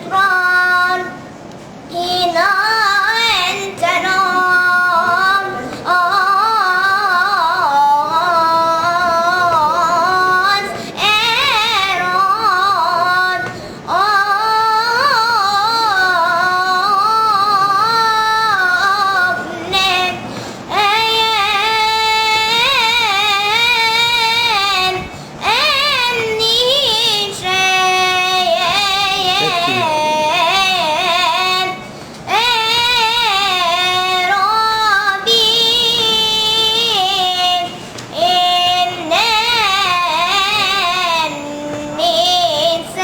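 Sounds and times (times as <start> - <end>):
boy singing in high voice: 0.0 - 1.3, 1.9 - 43.0.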